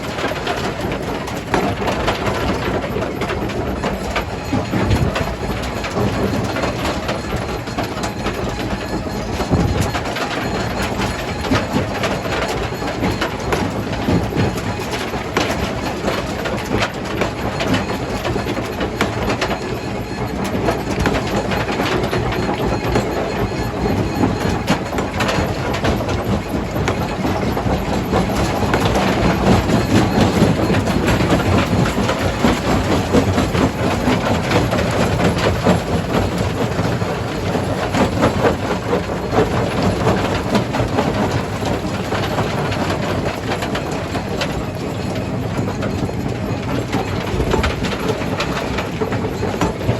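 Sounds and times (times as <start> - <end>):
heavy machine rumble: 0.0 - 49.9.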